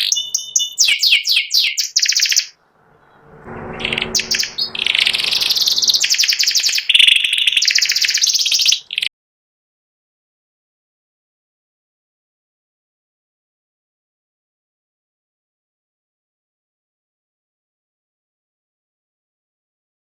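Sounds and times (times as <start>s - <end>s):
canary singing trills: 0.0s - 9.1s.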